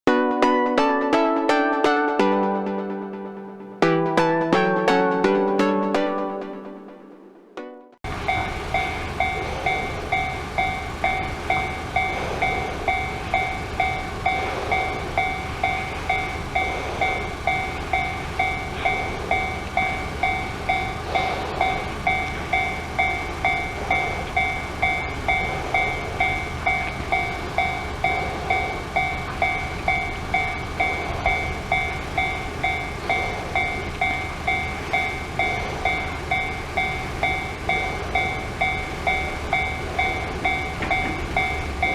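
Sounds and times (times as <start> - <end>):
level-crossing alarm ringing: 8.1 - 41.9.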